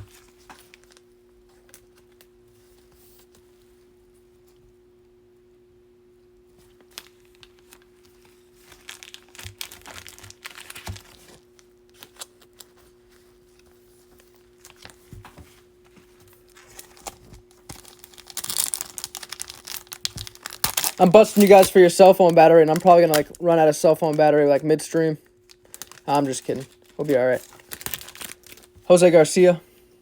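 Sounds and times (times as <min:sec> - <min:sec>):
faint steady hum: 0:00.0 - 0:30.0
foil wrappers tearing and crinkling: 0:06.9 - 0:12.8, 0:16.4 - 0:29.5.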